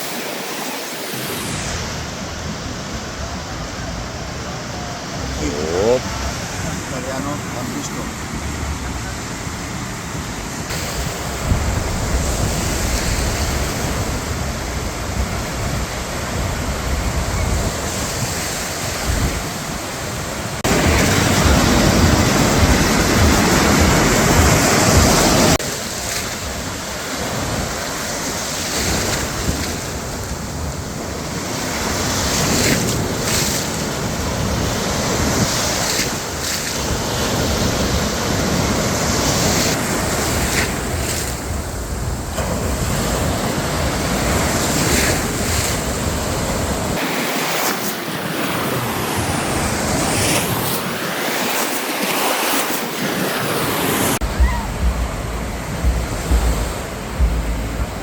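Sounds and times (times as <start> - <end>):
surf washing on shore: 0.0 - 58.0
wind buffeting microphone: 10.2 - 47.0, 52.8 - 58.0.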